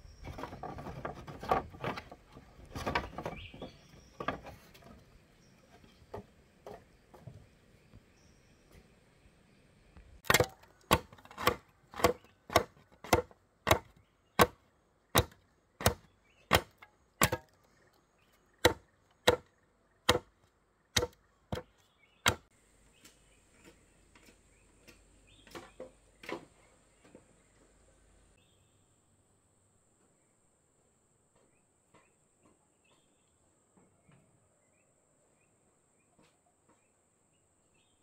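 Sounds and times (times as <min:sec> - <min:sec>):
tool striking wood: 0:10.2 - 0:14.6, 0:15.2 - 0:17.6, 0:18.6 - 0:20.4, 0:21.0 - 0:22.5.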